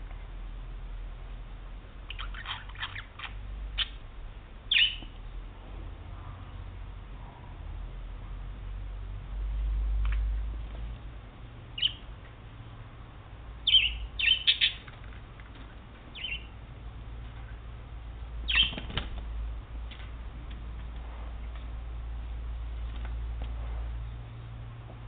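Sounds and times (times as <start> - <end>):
budgie chirping: 2.1 - 4.0, 4.7 - 5.1, 11.7 - 12.1, 13.6 - 15.0, 16.1 - 16.6, 18.4 - 18.9.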